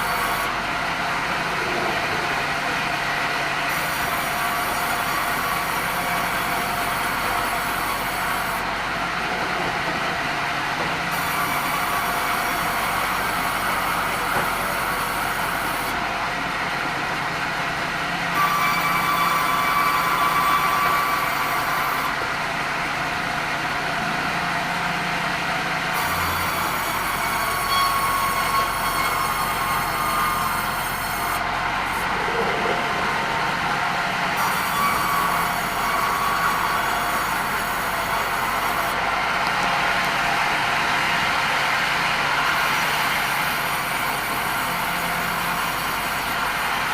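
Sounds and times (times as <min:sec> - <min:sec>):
bandsaw cutting timber: 0:00.0 - 0:00.6, 0:03.6 - 0:08.8, 0:10.8 - 0:16.0, 0:18.3 - 0:22.6, 0:25.8 - 0:33.4, 0:34.3 - 0:39.6, 0:42.5 - 0:46.9
whining saw tone: 0:18.3 - 0:22.2, 0:25.9 - 0:39.6.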